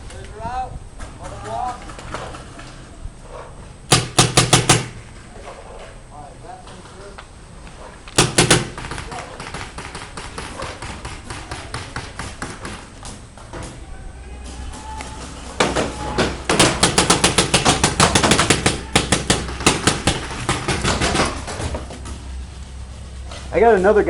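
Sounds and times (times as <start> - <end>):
paintball marker firing: 3.9 - 5.1, 8.1 - 12.9, 16.4 - 21.3.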